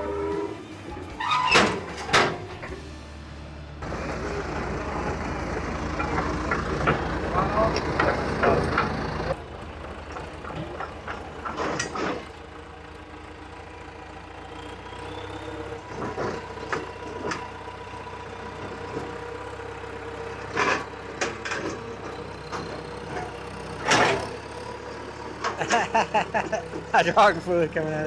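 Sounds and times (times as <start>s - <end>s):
metal clanks and knocks: 0.0s - 3.2s, 10.0s - 12.4s, 20.5s - 24.7s
heavy machinery engine idling: 0.0s - 28.0s.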